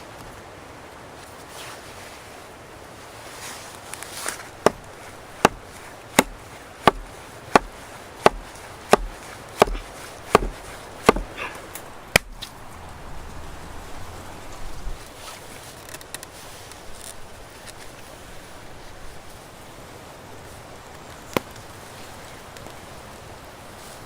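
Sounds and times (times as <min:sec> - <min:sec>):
axe chopping wood: 0:04.6 - 0:12.5.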